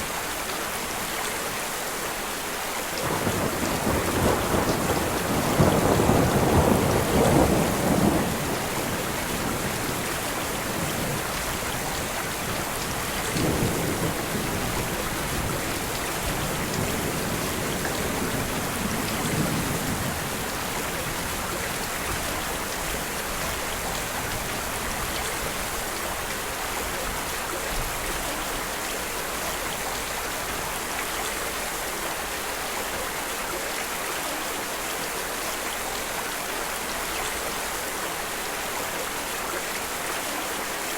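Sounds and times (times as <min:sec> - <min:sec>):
steady rain: 0:00.0 - 0:40.9
thunder rumbling: 0:03.0 - 0:22.4.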